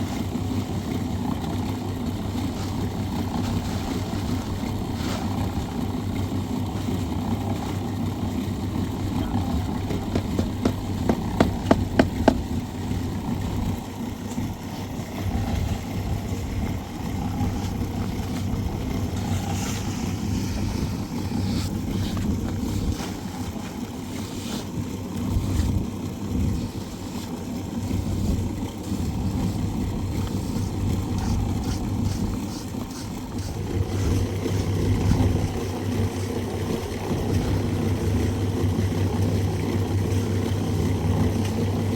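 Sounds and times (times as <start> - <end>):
small engine running: 0.0 - 41.9
sharp knocks: 9.8 - 12.4.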